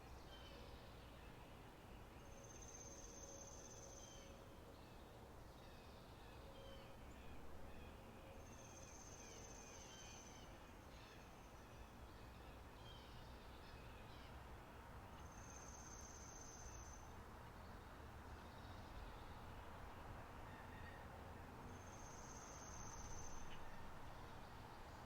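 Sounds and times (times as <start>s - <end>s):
soft background hiss: 0.0s - 25.0s
faint bird chirps: 21.7s - 24.3s.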